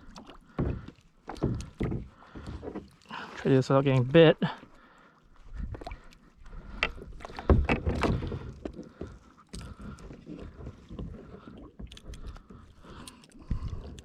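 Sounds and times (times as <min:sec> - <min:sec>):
knocks and rattles on plastic kayak: 0:00.2 - 0:04.6, 0:06.6 - 0:12.7.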